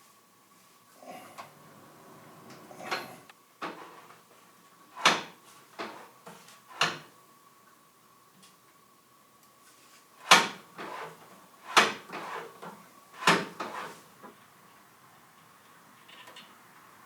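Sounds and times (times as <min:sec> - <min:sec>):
faint steady hum: 0:00.0 - 0:11.6.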